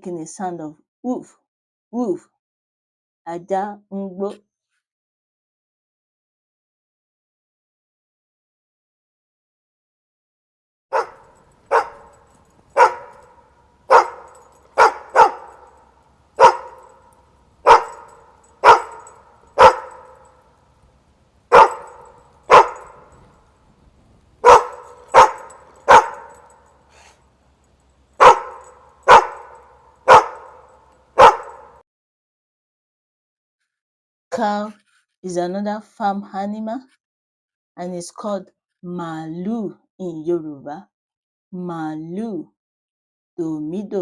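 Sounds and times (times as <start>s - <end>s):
dog barking: 10.9s - 20.5s, 21.5s - 23.4s, 24.4s - 27.2s, 28.2s - 31.8s.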